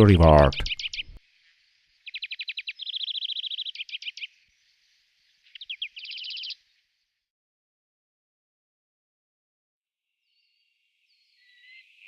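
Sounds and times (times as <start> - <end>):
songbird trilling: 0.6 - 1.2, 2.0 - 4.3, 5.5 - 6.6.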